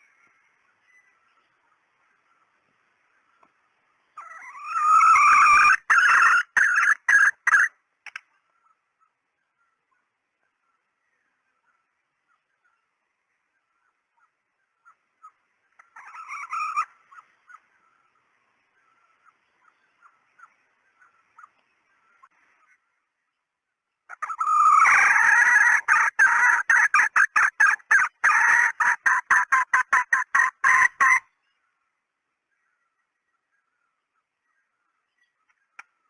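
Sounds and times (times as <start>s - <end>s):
hen cackling loudly: 4.2s - 7.7s, 15.8s - 17.6s, 24.1s - 31.3s
hen clucking softly: 13.8s - 17.9s, 19.1s - 22.8s, 24.1s - 31.3s.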